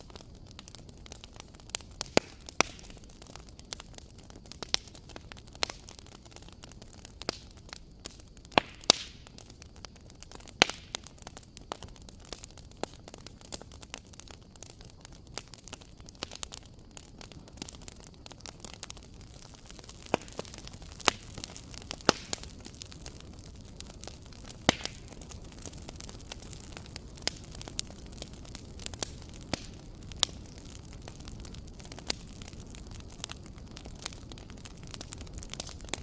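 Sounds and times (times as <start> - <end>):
soft steady hiss: 0.0 - 36.0
wood fire crackling and popping: 0.0 - 36.0.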